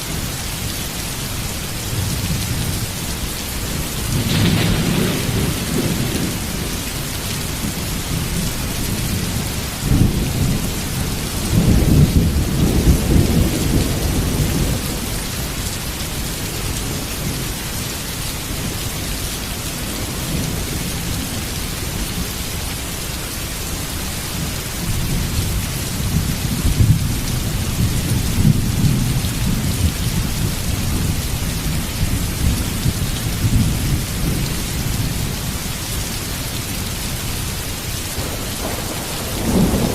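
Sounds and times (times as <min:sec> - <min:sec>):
heavy rain falling: 0:00.0 - 0:39.9
thunder rumbling: 0:01.9 - 0:17.6, 0:37.2 - 0:39.9.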